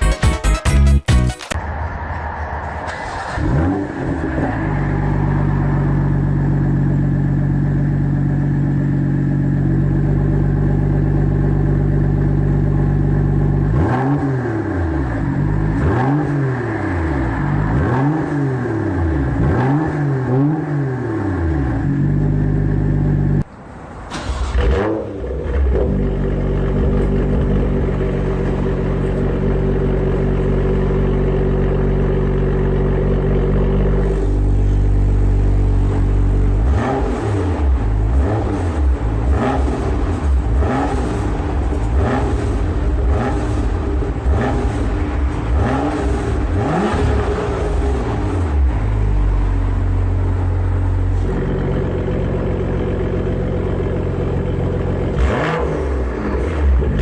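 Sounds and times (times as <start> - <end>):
car engine idling and revving: 1.5 - 57.0.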